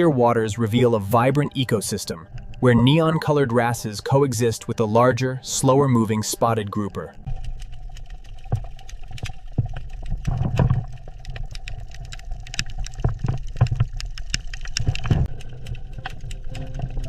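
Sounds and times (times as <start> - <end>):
sharp clicks and crackles: 2.2 - 2.7, 7.2 - 17.0.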